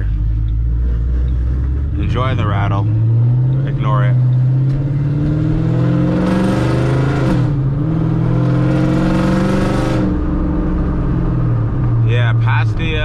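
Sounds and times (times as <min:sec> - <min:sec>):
loud car exhaust accelerating: 0:00.0 - 0:13.0.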